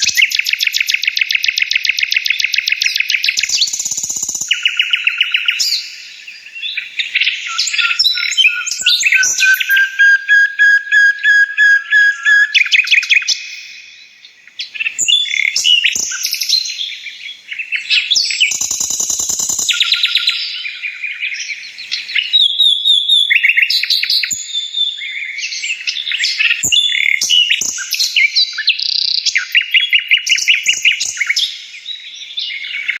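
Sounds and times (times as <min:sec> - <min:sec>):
birds chirping and trilling: 0:00.0 - 0:33.0.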